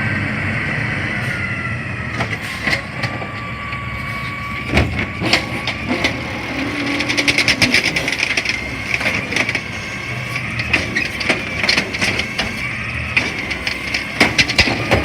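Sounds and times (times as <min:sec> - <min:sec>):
garbage truck engine running: 0:00.0 - 0:15.0
trash cracking and crunching: 0:04.5 - 0:15.0.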